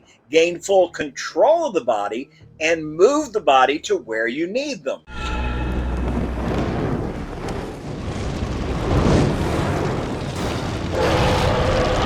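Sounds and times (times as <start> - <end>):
low musical drone: 5.1 - 6.6
deep rumbling crash: 5.1 - 12.0.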